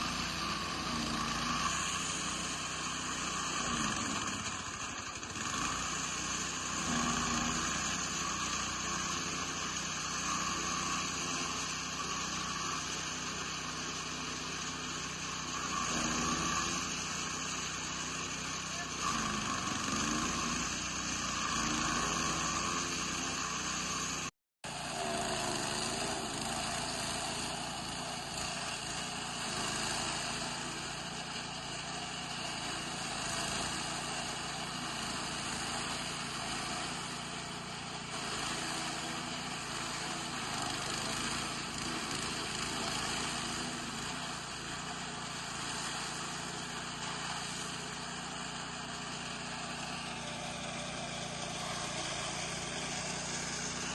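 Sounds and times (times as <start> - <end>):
small petrol engine running: 0.0 - 53.9.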